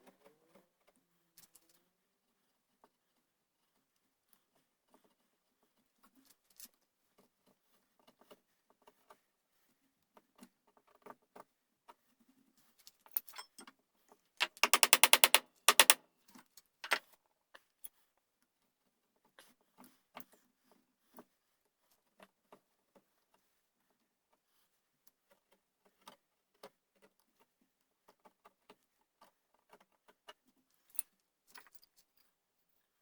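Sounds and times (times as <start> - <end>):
hand tools tapping and scraping wood: 14.4 - 16.0
rattling run of taps: 14.4 - 16.0.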